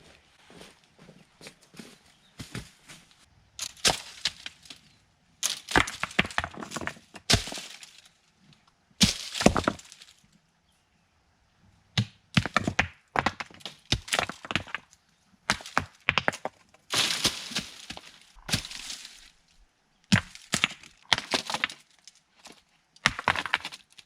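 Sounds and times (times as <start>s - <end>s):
dry sticks cracking and snapping: 3.6s - 10.2s, 16.9s - 19.5s.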